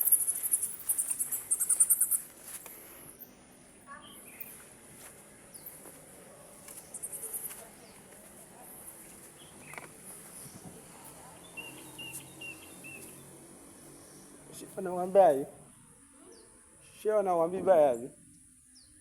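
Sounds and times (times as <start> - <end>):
bird chirps and calls: 0.0 - 2.3, 3.9 - 4.6, 6.8 - 8.0, 11.3 - 14.4.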